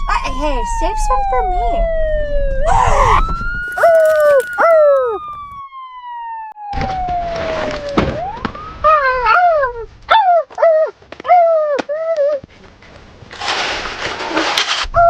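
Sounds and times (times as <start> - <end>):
siren-like swooping wails: 0.0 - 9.7
noisy rustle: 12.5 - 15.0.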